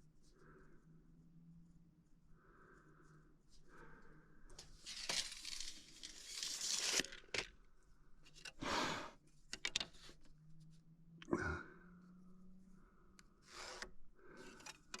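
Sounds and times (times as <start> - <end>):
rustling and scraping: 4.5 - 10.8, 13.5 - 15.0.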